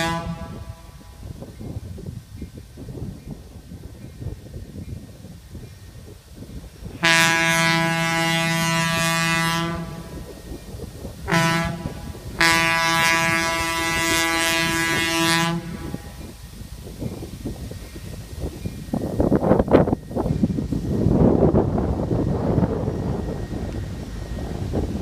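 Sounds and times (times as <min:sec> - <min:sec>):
locomotive air horn blasts: 0:00.0 - 0:01.3, 0:07.0 - 0:10.3, 0:11.2 - 0:16.4.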